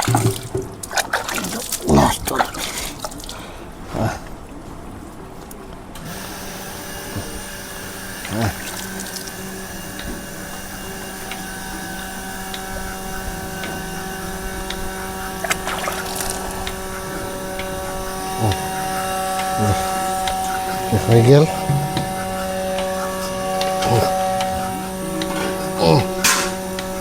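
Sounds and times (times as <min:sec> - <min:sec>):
vacuum pump motor humming: 0:06.0 - 0:27.0.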